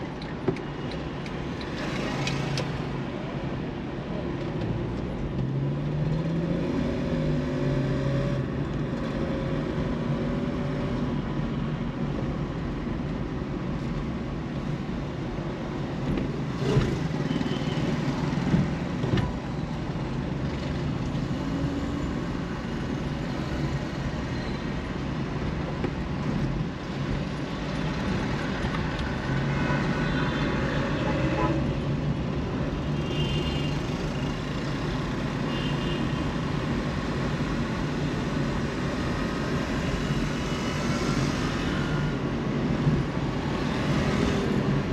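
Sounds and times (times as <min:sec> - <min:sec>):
road traffic rumble: 0:00.0 - 0:44.9.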